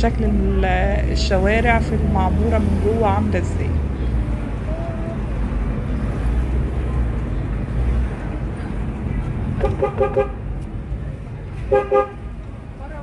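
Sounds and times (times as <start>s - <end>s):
car engine and road rumble: 0.0s - 13.0s
car horn toots: 9.6s - 10.4s, 11.7s - 12.3s.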